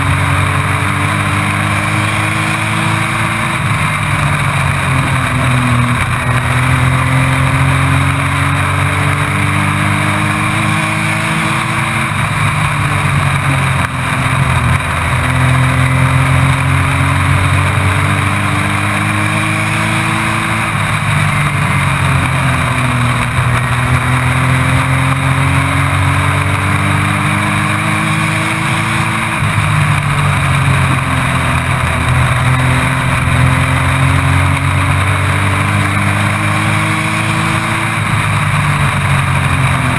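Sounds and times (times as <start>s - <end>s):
race truck engine revving: 0.0s - 39.9s.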